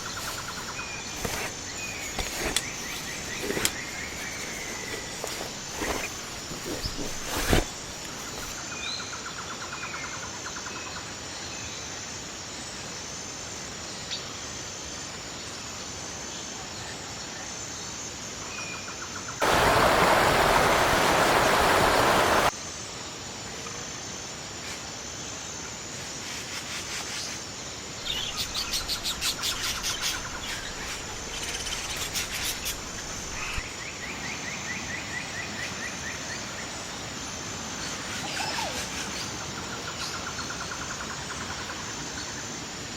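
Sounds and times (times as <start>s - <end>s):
loud hiss of noise: 19.4s - 22.5s.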